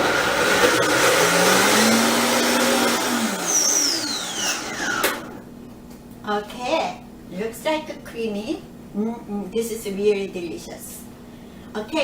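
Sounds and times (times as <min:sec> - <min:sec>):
blender running: 0:00.0 - 0:05.4
motor spinning down whine: 0:00.0 - 0:05.4.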